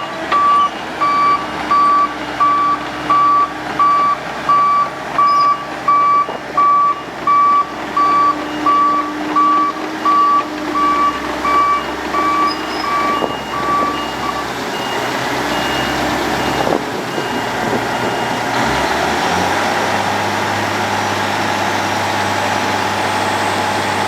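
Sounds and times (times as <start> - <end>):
reversing alarm beeping: 0.0 - 18.5
heavy diesel machine running: 0.0 - 24.0.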